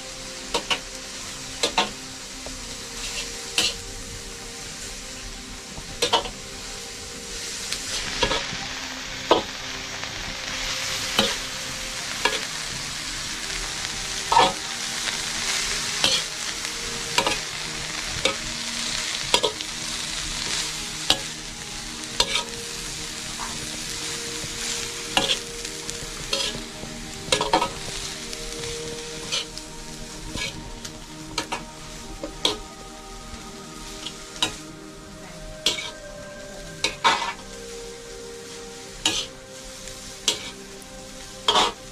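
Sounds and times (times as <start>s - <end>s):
food sizzling in a pan: 0.0s - 41.9s
metal utensil scraping a pan: 26.3s - 26.6s, 35.6s - 36.0s, 39.0s - 39.3s, 40.3s - 40.6s.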